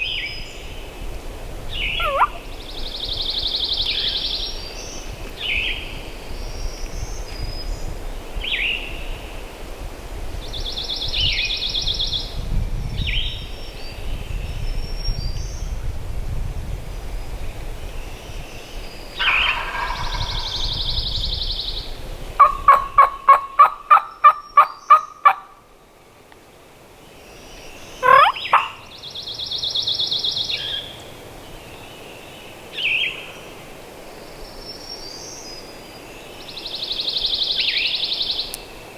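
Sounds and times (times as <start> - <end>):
songbirds chirping and trilling: 0.0 - 9.8, 16.9 - 25.4, 26.3 - 38.9
low wind rumble: 0.0 - 32.1
turkey yelps: 2.0 - 2.5, 19.2 - 20.8, 22.4 - 25.6, 28.0 - 28.8.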